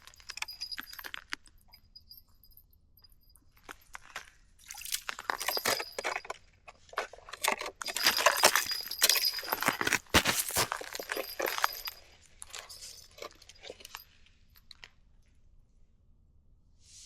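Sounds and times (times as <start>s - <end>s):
small hard objects clinking: 0.0s - 2.2s, 3.6s - 14.1s.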